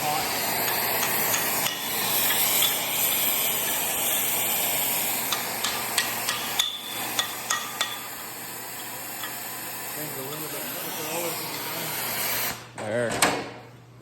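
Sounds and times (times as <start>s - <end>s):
cutting torch hissing: 0.0s - 12.8s
hammer tapping metal: 0.6s - 2.8s, 5.2s - 8.2s.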